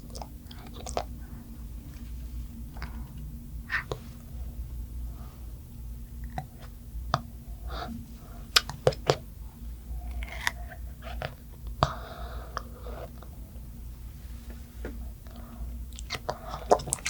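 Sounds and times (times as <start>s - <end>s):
chewing soft food: 0.0s - 4.1s, 8.5s - 13.6s, 15.2s - 17.0s
wet mouth clicks: 8.5s - 9.2s, 15.9s - 17.0s.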